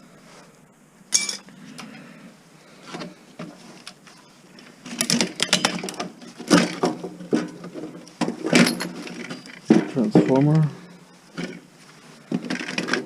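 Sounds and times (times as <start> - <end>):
metal parts knocking and rattling: 4.8 - 10.6, 12.3 - 13.0.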